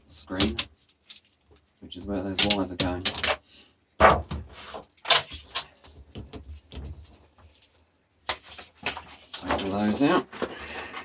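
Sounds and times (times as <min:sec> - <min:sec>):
plastic parts clicking and scraping: 0:00.3 - 0:03.4, 0:07.1 - 0:11.0.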